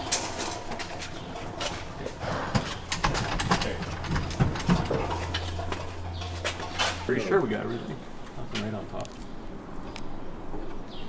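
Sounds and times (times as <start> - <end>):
metallic clicks and clanks of tools: 0.0 - 7.0
steady low hum: 0.0 - 11.0.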